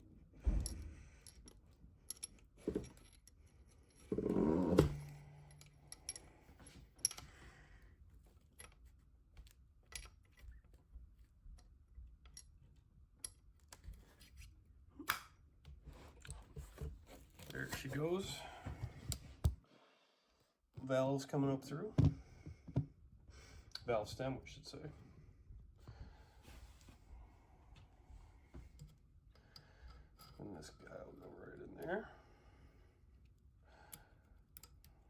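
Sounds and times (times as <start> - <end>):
metal tools clicking and clinking: 0.6 - 7.3.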